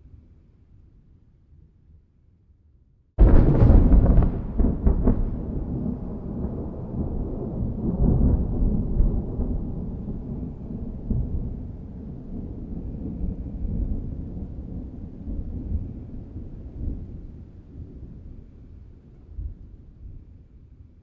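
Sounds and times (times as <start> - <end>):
thunder clap: 3.2 - 15.9
thunder rumbling: 3.2 - 18.4.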